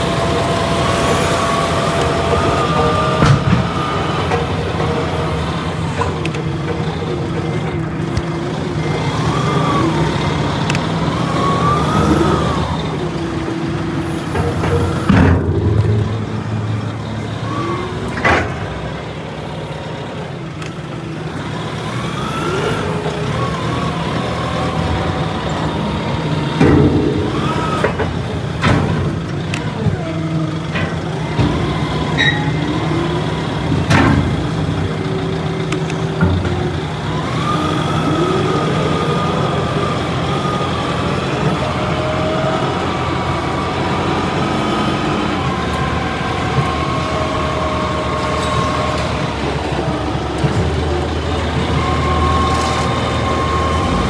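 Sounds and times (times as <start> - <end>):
truck engine running: 0.0 - 54.0
sharp knocks and bangs: 1.8 - 6.8, 14.2 - 19.0, 26.4 - 29.5.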